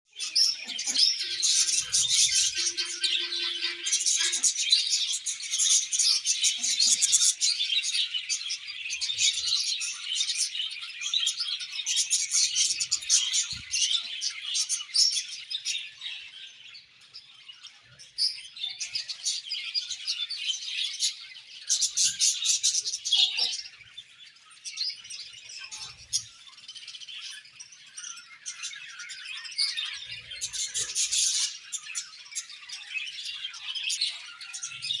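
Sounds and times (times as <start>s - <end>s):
budgerigars chirping and chattering: 0.1s - 35.0s.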